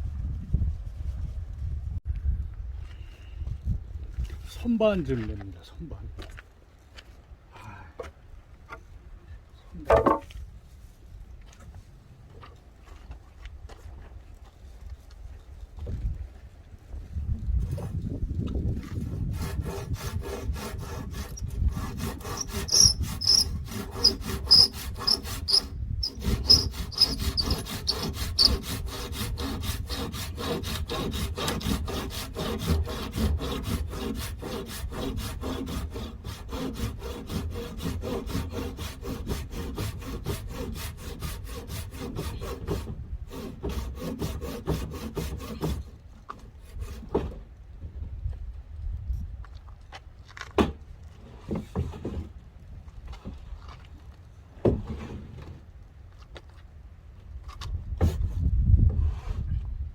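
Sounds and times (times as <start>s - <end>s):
hand saw cutting wood: 18.8s - 47.4s.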